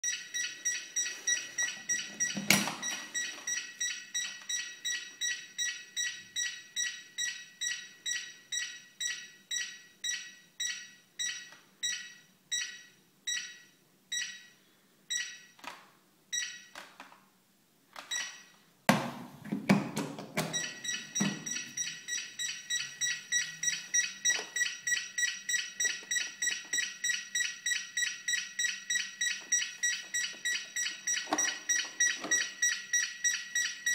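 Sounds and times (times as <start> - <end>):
rapid two-tone beeps: 0.0 - 2.4, 20.6 - 33.9.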